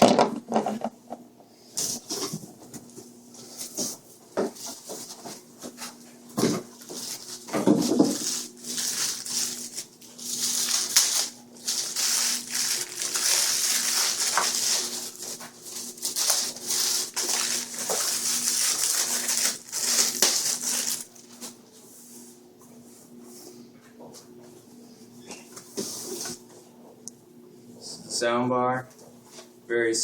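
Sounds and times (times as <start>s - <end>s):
packaging rustling and crinkling: 3.6s - 21.6s.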